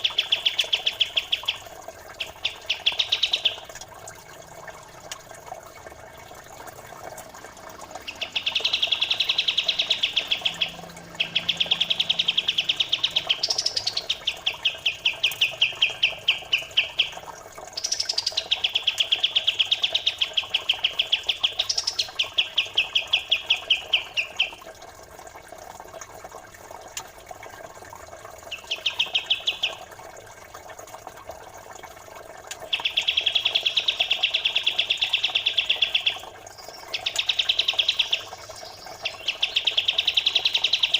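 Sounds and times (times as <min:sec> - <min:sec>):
songbird trills: 0:00.0 - 0:03.7, 0:07.9 - 0:24.6, 0:28.5 - 0:29.8, 0:32.7 - 0:40.9
trickling water: 0:00.0 - 0:40.9.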